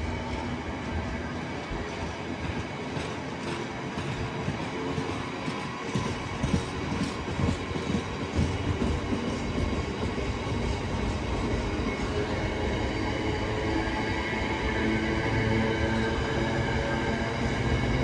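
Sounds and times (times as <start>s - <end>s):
train wheel clatter: 0.0s - 13.8s
train rumble: 0.0s - 18.0s.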